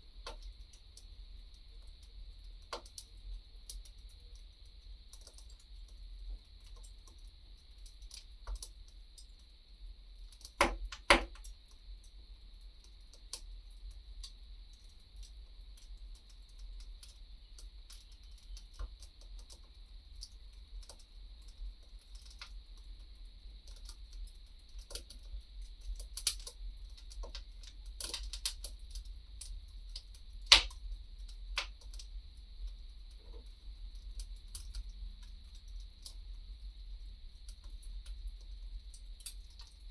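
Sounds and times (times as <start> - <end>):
wood fire crackling: 10.2 - 11.6, 23.6 - 39.9.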